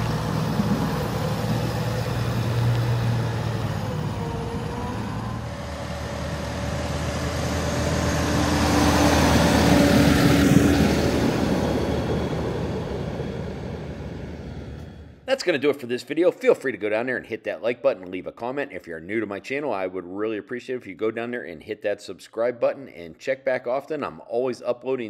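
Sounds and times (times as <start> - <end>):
vehicle engine passing: 0.0 - 15.2.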